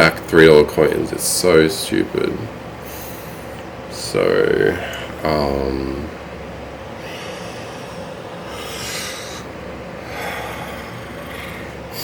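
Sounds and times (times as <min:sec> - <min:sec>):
steady background hiss: 0:00.0 - 0:12.0
person breathing and sniffing: 0:07.0 - 0:12.0.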